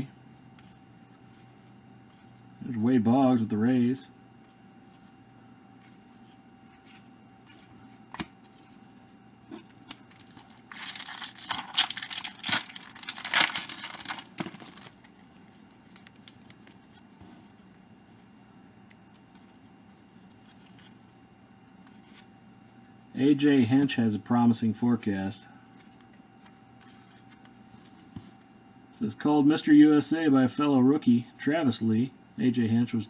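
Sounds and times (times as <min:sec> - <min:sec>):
wrapper tearing and crinkling: 0:09.9 - 0:16.7.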